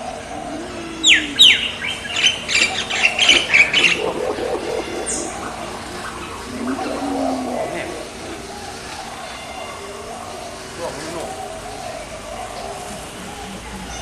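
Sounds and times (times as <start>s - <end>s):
parrot screeching and chattering: 0.0s - 9.7s.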